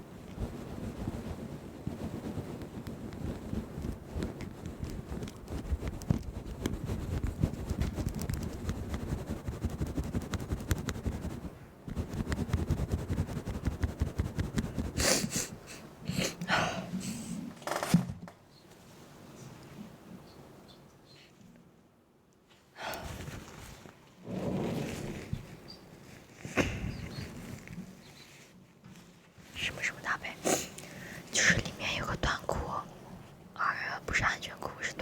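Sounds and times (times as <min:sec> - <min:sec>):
crackling rustling on microphone: 0:00.0 - 0:17.5, 0:23.0 - 0:35.0
short hissing bursts: 0:14.8 - 0:16.3.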